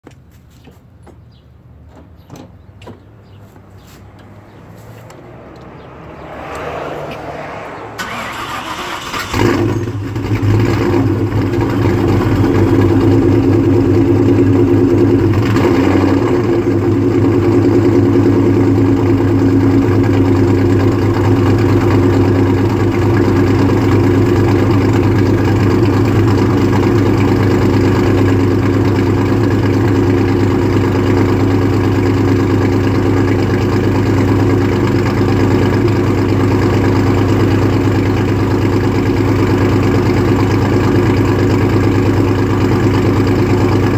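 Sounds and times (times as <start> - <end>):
car engine starting and idling: 4.1 - 43.9.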